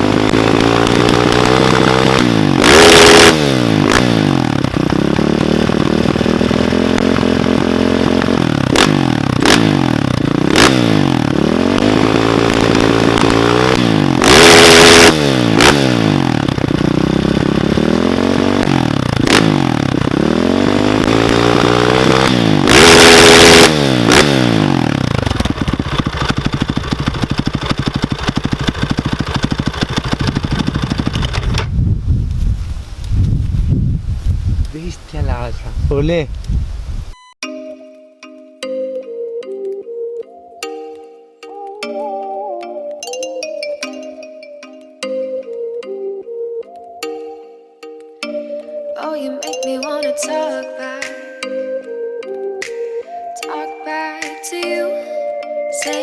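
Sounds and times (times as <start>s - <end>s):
motorcycle engine revving: 0.0s - 34.8s.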